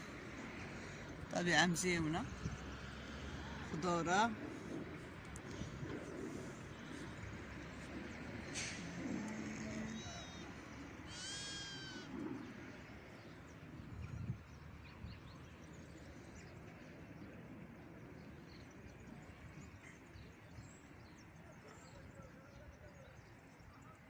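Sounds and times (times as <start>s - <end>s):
faint outdoor background: 0.0s - 24.0s
high animal call: 11.1s - 12.2s.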